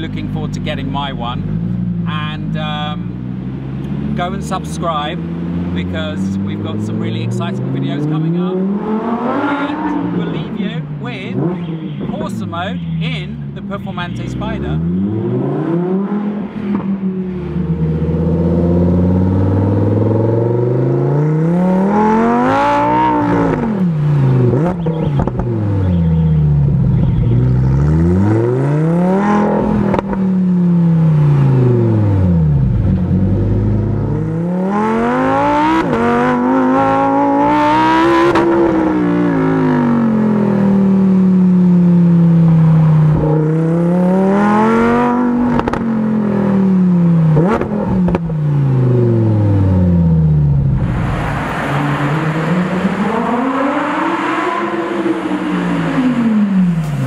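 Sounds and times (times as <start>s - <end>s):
sports car engine revving: 0.0s - 57.0s.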